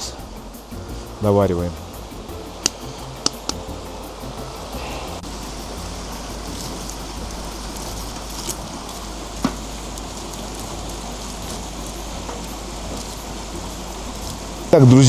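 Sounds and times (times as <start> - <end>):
rushing mountain stream: 0.0 - 15.0.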